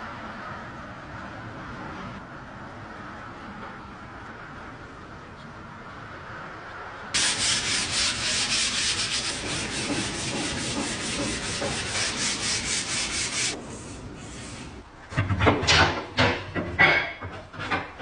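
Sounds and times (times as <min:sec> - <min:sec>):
sanding: 0:07.2 - 0:14.8.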